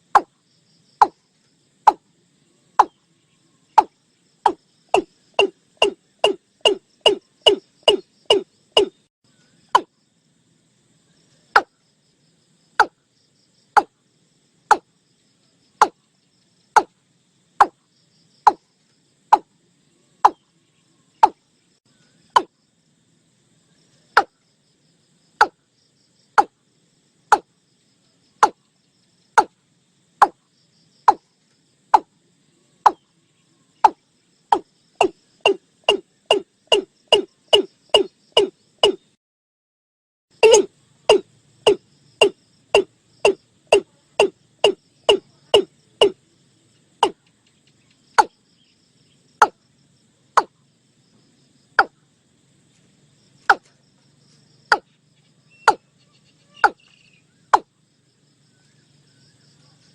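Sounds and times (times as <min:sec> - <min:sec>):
bird calling sharp notes: 0:04.9 - 0:09.0, 0:33.8 - 0:39.0, 0:40.4 - 0:46.2.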